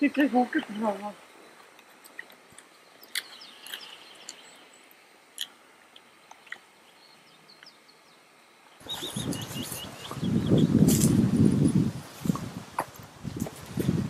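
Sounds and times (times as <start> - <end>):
faint bird chirps: 2.7 - 5.0, 6.3 - 10.8
footsteps on grass: 9.4 - 14.0.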